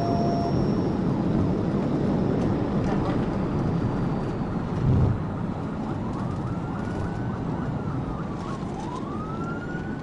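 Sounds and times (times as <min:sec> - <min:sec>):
low rumble: 0:00.8 - 0:06.0
police siren wailing: 0:05.1 - 0:10.0.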